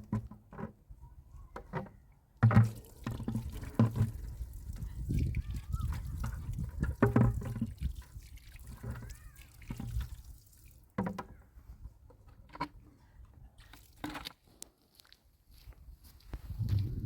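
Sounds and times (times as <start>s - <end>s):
water dripping and splashing: 2.5s - 11.0s.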